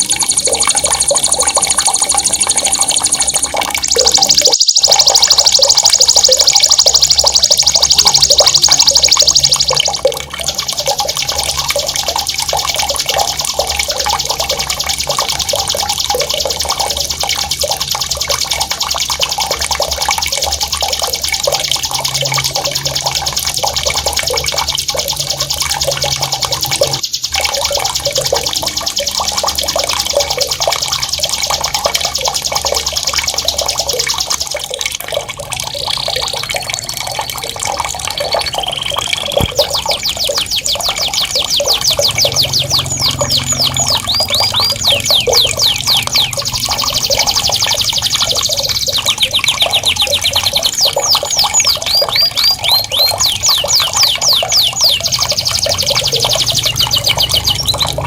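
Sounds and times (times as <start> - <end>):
rapid high bird trill: 0.0 - 34.5, 37.1 - 58.0
running splashing water: 0.0 - 58.0
short high bird chirps: 38.3 - 58.0.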